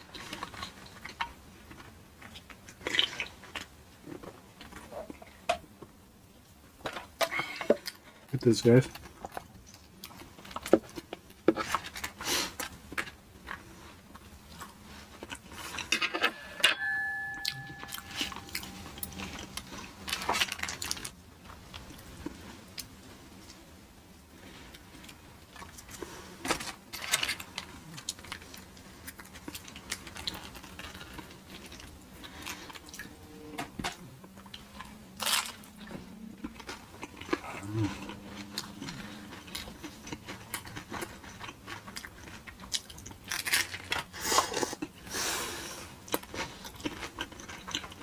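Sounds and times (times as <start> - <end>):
crunching and wet chewing: 0.0 - 5.4, 7.2 - 16.0, 17.4 - 23.6, 24.3 - 48.0
brief steady tone: 16.3 - 19.9
wrapper handling: 18.6 - 21.2.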